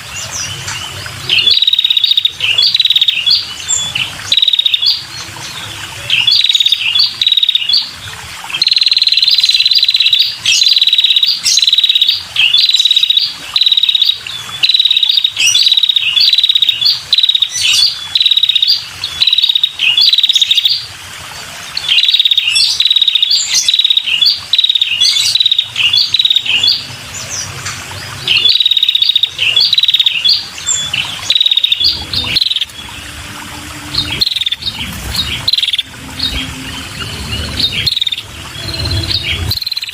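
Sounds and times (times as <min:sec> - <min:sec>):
bird trilling calls: 0:01.3 - 0:05.1, 0:06.1 - 0:07.9, 0:21.8 - 0:27.5, 0:28.1 - 0:39.9.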